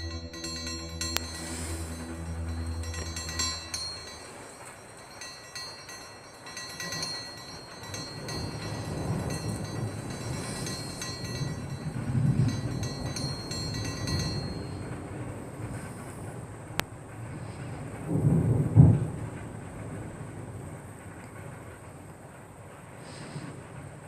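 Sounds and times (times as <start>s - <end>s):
background music: 0.0s - 14.7s.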